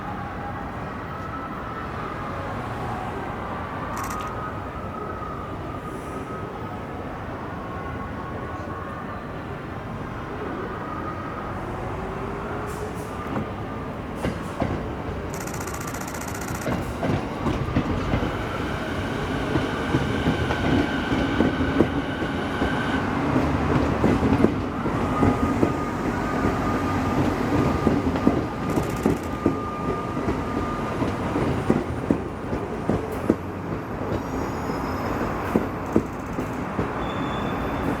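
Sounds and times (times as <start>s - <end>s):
wheel squeal: 34.2s - 38.0s
wheels clacking over rail joints: 35.5s - 37.1s.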